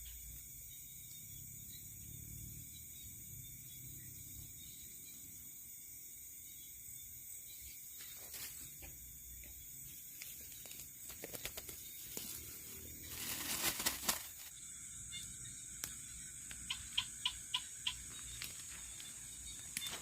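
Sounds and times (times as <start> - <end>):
crickets trilling: 0.0 - 20.0
rustling and crackling: 10.0 - 14.6, 18.0 - 20.0.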